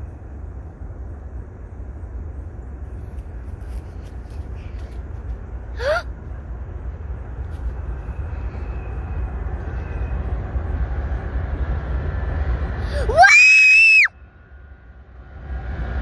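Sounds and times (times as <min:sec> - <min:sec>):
low rumble: 0:00.0 - 0:13.2, 0:14.0 - 0:16.0
girl screaming: 0:12.9 - 0:14.1.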